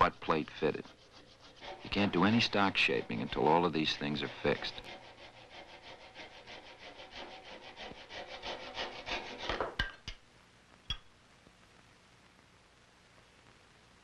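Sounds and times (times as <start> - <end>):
hand file rasping on wood: 0.0 - 9.7.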